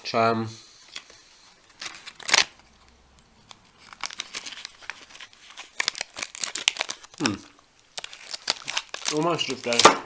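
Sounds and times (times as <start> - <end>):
plastic wrapper crinkling: 0.9 - 10.0
person humming briefly: 7.2 - 7.6.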